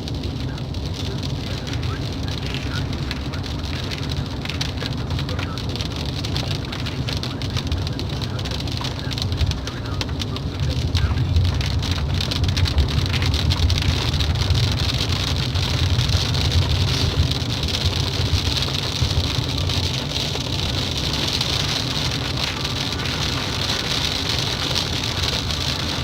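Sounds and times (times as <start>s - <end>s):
low rumble: 0.0s - 26.0s
rain pattering: 0.0s - 26.0s.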